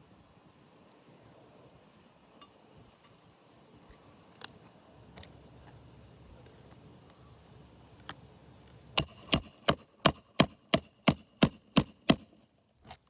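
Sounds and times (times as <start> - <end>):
hammer striking nail: 9.0 - 12.4.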